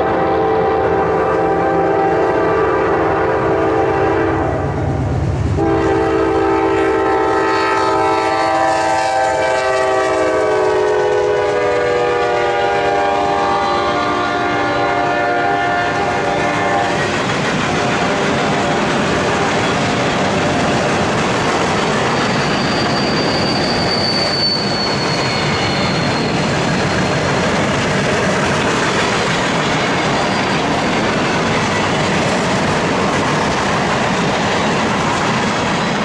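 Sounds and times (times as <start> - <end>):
locomotive horn blasts: 0.0 - 4.8, 5.6 - 17.1
train wheels clattering over rails: 13.9 - 36.0.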